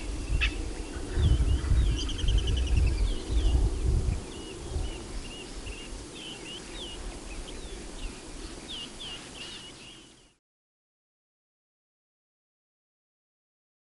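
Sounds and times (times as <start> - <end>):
low rumble: 0.0 - 6.0
small birds chirping: 0.0 - 10.4.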